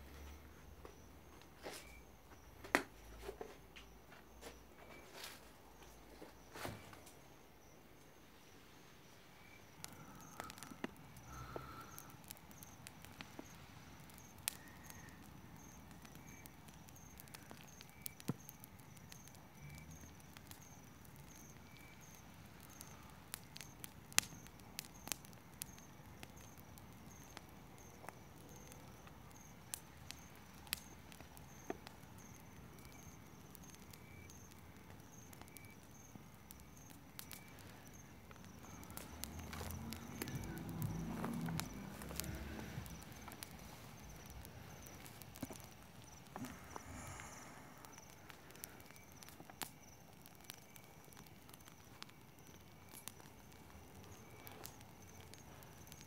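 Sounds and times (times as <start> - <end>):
crickets chirping: 0.0 - 56.0
campfire crackling and popping: 9.0 - 56.0.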